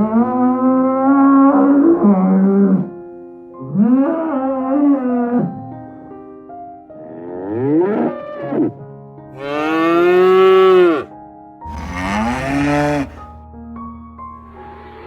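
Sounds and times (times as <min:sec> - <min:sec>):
soft background music: 0:00.0 - 0:15.0
animal bellowing calls: 0:11.7 - 0:13.4.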